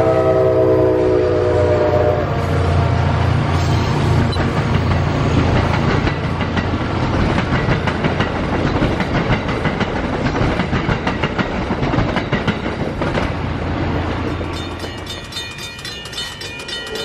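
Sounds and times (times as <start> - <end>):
train wheels clickety-clack: 3.6 - 17.0.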